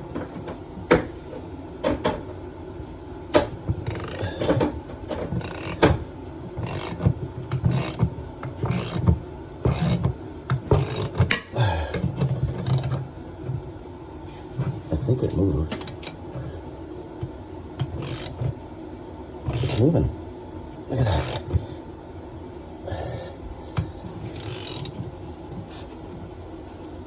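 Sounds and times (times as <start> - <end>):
ratcheting wrench clicking: 3.8 - 4.3, 5.4 - 5.9, 6.6 - 9.1, 9.7 - 11.4, 12.6 - 13.0, 15.8 - 16.2, 17.9 - 18.4, 19.5 - 19.9, 21.0 - 21.4, 24.3 - 25.0.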